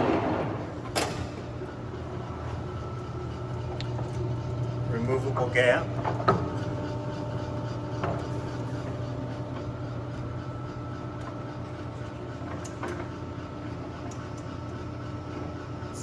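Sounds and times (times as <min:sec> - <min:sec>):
machinery humming: 0:00.0 - 0:10.9.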